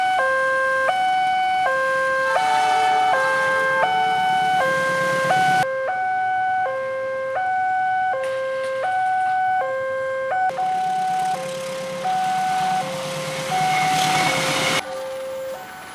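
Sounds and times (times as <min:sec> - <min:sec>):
two-tone crossing alarm: 0:00.0 - 0:15.9.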